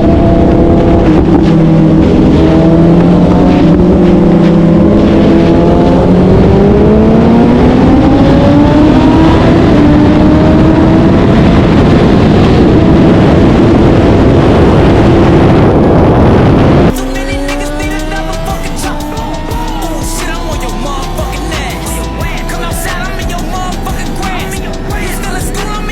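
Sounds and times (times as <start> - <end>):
heavy wind rush: 0.0 - 25.9
music: 16.9 - 25.9.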